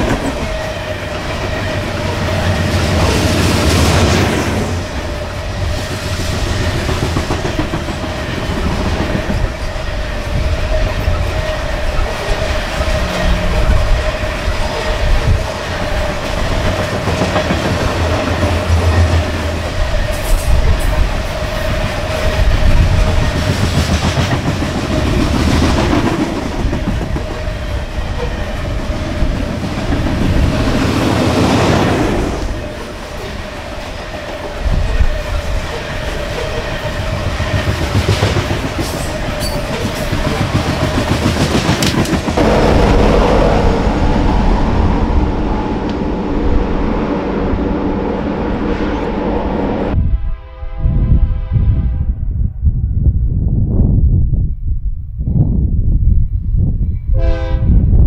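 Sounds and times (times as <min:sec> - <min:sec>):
train rumble: 0:00.0 - 0:58.0
train wheels clicking over rail joints: 0:05.8 - 0:09.7, 0:22.9 - 0:31.7, 0:36.5 - 0:42.4
steady tone: 0:42.4 - 0:50.2.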